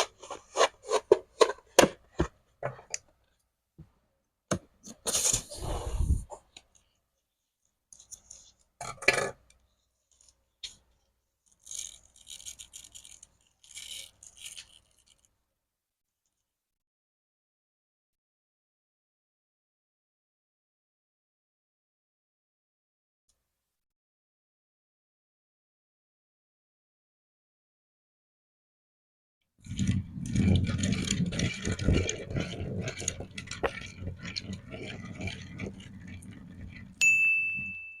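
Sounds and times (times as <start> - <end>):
high ringing tone: 37.0 - 38.0.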